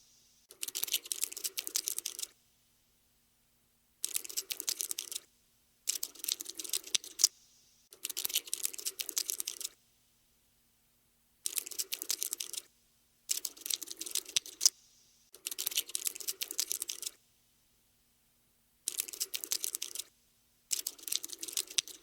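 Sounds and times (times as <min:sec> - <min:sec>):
cockroach scuttling clicks: 0:00.5 - 0:02.3, 0:04.0 - 0:05.2, 0:05.9 - 0:07.3, 0:07.9 - 0:09.8, 0:11.4 - 0:12.7, 0:13.3 - 0:14.8, 0:15.4 - 0:17.2, 0:18.9 - 0:20.1, 0:20.7 - 0:22.0.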